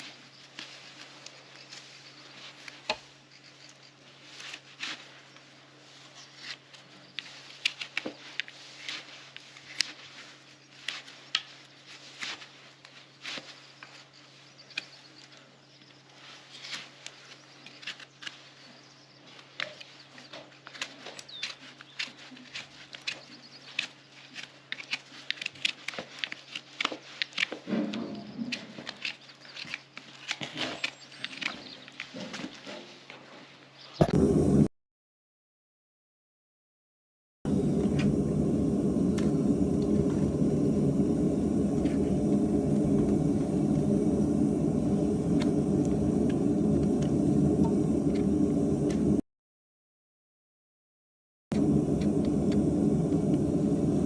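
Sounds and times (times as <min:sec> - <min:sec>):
tools scraping hoof: 0:16.4 - 0:33.7
steady low hum: 0:34.0 - 0:34.7, 0:37.5 - 0:49.2, 0:51.5 - 0:54.0.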